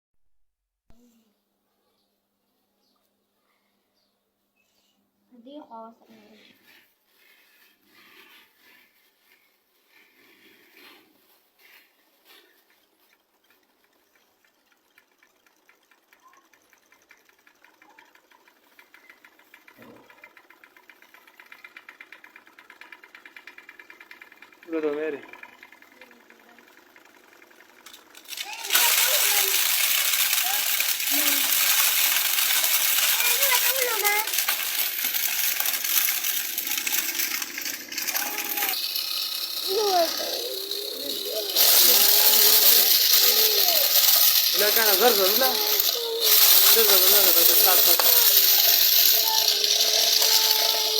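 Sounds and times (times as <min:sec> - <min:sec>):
toy tractor motor clattering: 0:05.4 - 0:50.9
metallic rattling and clicking: 0:15.2 - 0:50.9
faint voices: 0:28.3 - 0:37.2, 0:39.5 - 0:50.9.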